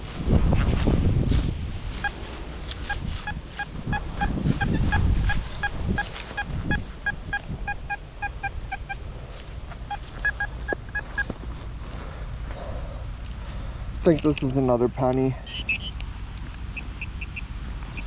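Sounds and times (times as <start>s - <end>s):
wind rumbling on microphone: 0.0s - 14.1s
metal detector short beeps: 2.8s - 9.0s, 9.9s - 11.3s, 15.4s - 16.0s, 16.7s - 18.0s.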